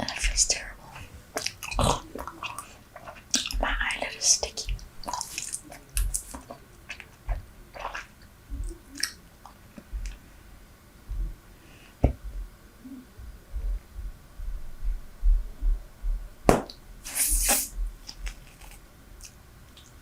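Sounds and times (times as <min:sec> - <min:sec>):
gum chewing with wet smacks: 0:00.0 - 0:10.2
soft low thump: 0:11.1 - 0:11.4, 0:13.2 - 0:16.6.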